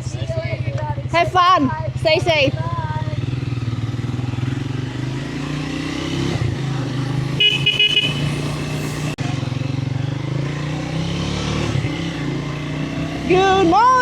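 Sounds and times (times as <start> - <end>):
motorcycle engine running: 0.0 - 14.0
horn short beeps: 7.2 - 9.0.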